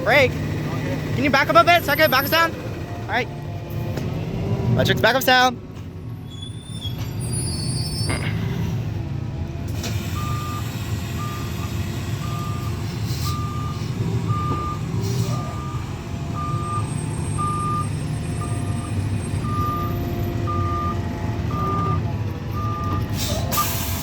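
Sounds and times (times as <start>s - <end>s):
truck engine running: 0.0s - 24.0s
truck back-up alarm beeping: 9.7s - 24.0s.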